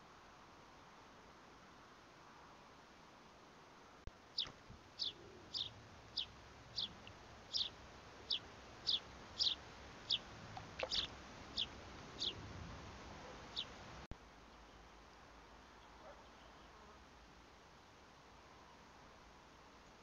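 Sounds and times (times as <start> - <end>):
small bird calling: 4.3 - 12.4, 13.2 - 13.8.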